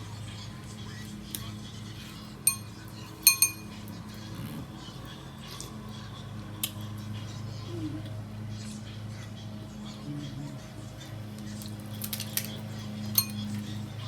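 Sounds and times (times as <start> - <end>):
utensil clinking on a dish: 2.4 - 4.6, 12.0 - 13.8.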